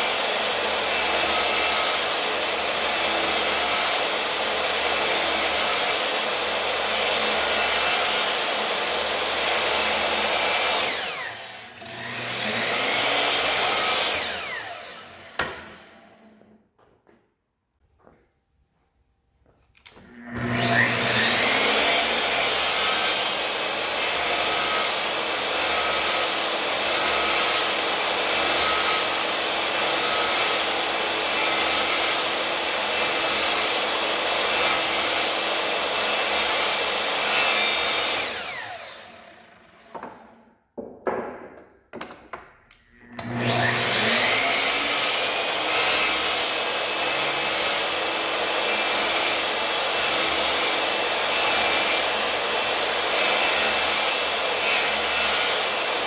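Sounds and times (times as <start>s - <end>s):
power tool working wood: 0.0s - 16.6s, 19.9s - 41.2s, 41.9s - 56.0s
knocks: 39.9s - 42.6s.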